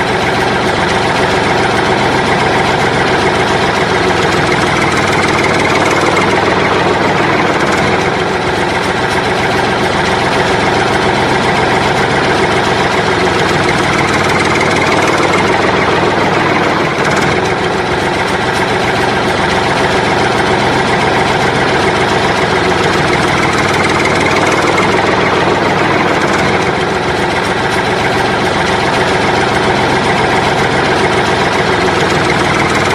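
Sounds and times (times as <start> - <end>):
engine idling: 0.0 - 32.9.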